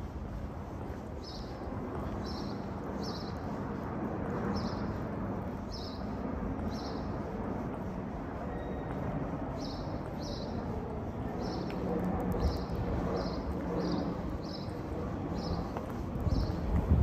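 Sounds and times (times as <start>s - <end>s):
low city rumble: 0.0s - 17.0s.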